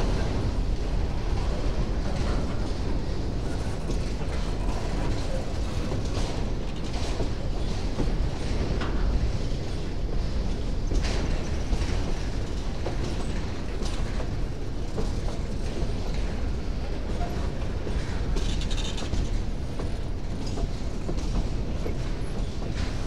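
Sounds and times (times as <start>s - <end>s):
clicks and creaks from train cars: 0.0s - 23.0s
freight train wheels rumbling on rail: 0.0s - 23.0s.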